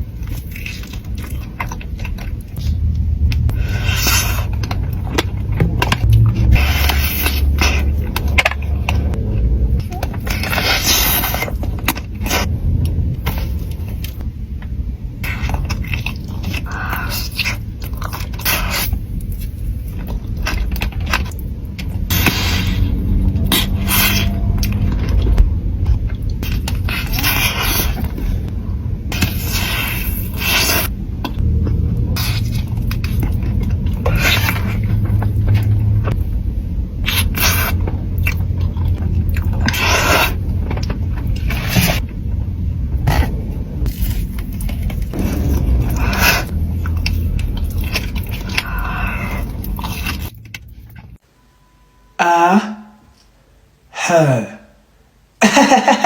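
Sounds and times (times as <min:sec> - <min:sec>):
crunching and chewing pastries: 0:00.0 - 0:51.2.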